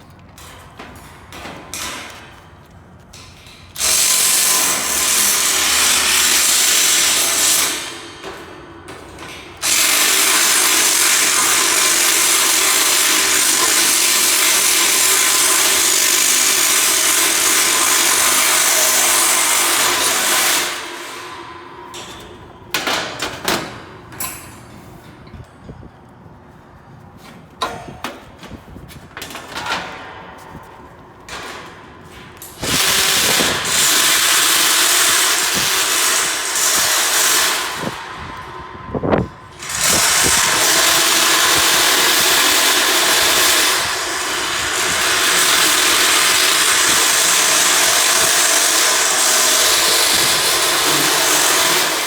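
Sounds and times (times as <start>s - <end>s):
power drill motor running: 3.8s - 7.9s, 9.6s - 21.2s, 32.6s - 38.0s, 39.6s - 52.0s.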